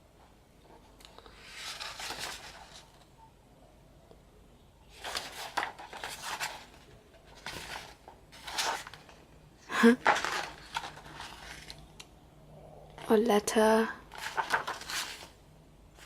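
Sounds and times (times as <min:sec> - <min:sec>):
paper rustling: 0:01.1 - 0:03.1, 0:04.9 - 0:09.2, 0:09.8 - 0:11.9, 0:14.1 - 0:15.4.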